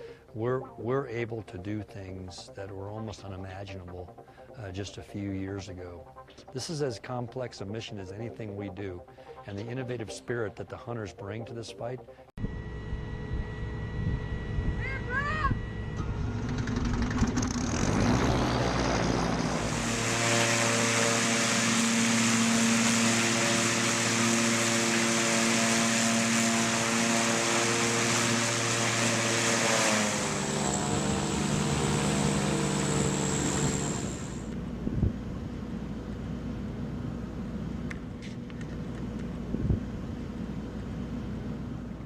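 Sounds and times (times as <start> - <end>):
thin high whine: 12.4 - 34.7
propeller drone engine running: 12.4 - 42.0.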